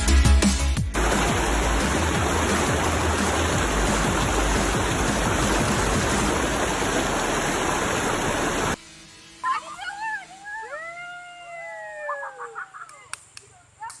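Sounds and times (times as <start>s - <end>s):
waterfall rushing: 1.0s - 8.8s.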